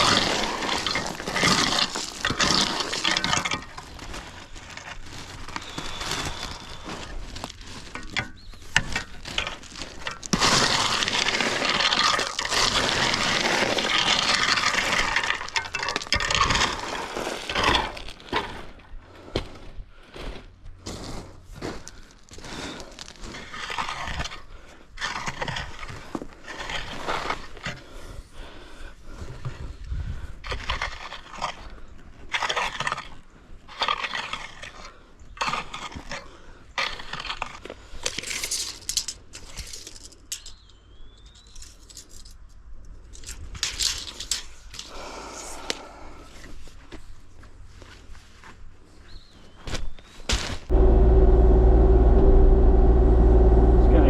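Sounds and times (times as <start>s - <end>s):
shovel crunching crushed stone: 0.0s - 18.8s, 20.2s - 27.6s, 30.4s - 40.0s
low hum: 50.7s - 54.0s.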